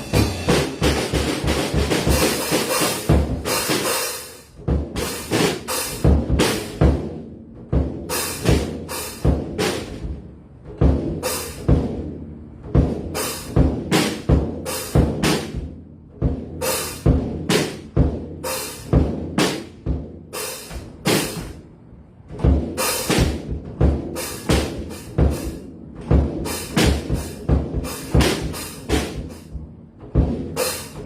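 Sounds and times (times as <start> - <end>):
bass drum and snare hits: 0.0 - 3.9, 4.6 - 10.2, 12.7 - 21.6, 22.4 - 31.0
cymbal crashes: 0.0 - 4.4.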